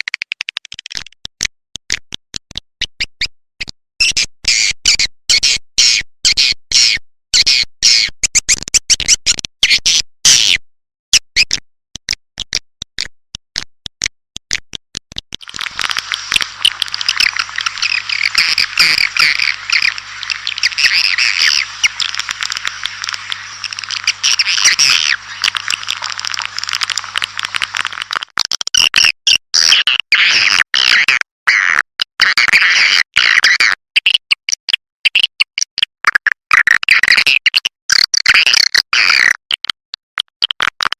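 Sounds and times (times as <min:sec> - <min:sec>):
faint low hum: 0:15.4 - 0:28.1
swiftlet chattering chorus: 0:15.4 - 0:28.1
swiftlets chirping: 0:15.4 - 0:28.2.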